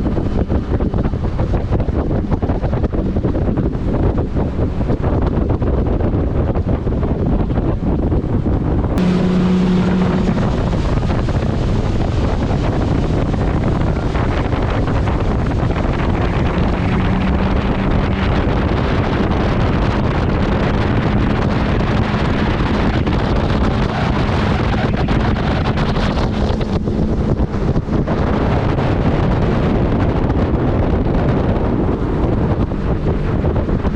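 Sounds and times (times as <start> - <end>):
boat engine hum: 0.0 - 33.9
wind on microphone: 0.0 - 33.9.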